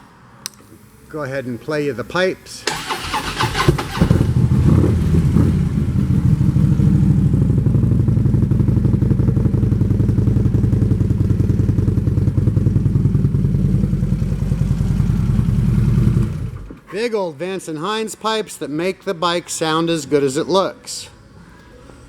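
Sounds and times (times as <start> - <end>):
motorcycle engine idling: 3.4 - 16.8.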